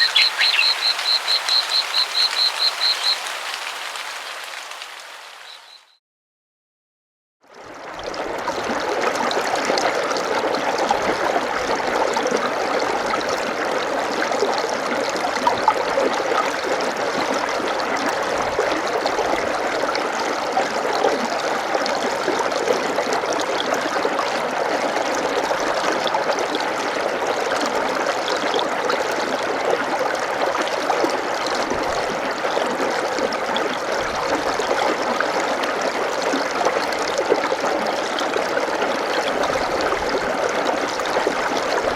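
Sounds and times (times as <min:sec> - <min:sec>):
water running: 0:00.0 - 0:05.3.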